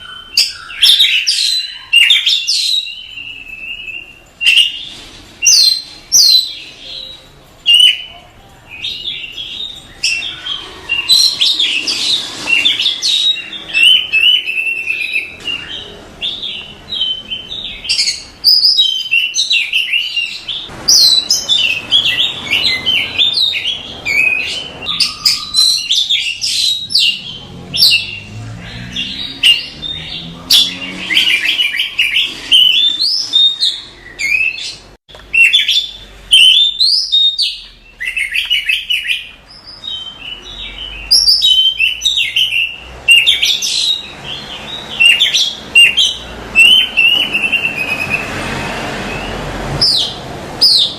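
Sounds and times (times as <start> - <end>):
bird singing chirps and trills: 0.0 - 50.9.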